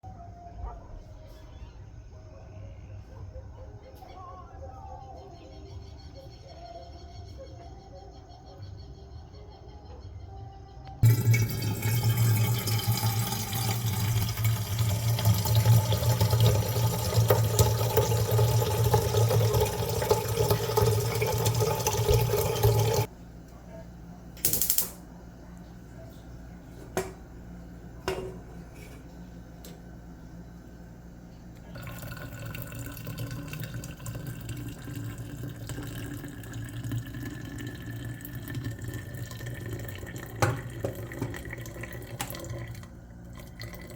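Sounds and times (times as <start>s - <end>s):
water running from a tap: 11.0s - 23.1s, 31.8s - 43.9s.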